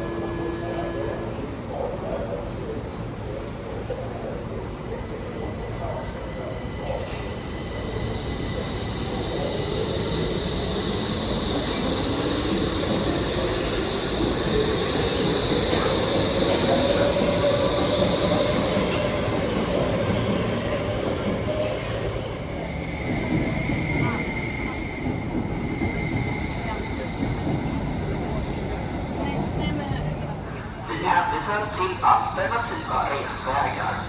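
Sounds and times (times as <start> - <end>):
train motor whine: 0.0 - 1.4
train wheel squeal: 4.8 - 20.8, 21.5 - 30.0.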